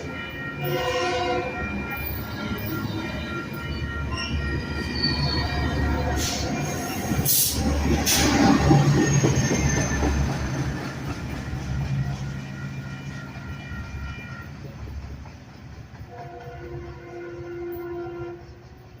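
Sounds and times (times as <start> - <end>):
distant train horn: 0.0 - 8.5, 11.6 - 15.0, 16.0 - 19.0
train passing: 0.0 - 19.0.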